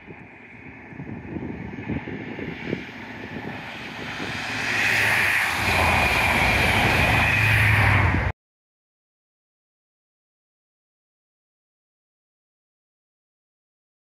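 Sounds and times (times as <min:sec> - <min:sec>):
low engine drone: 0:00.0 - 0:08.3
train passing with high whine: 0:00.0 - 0:08.3.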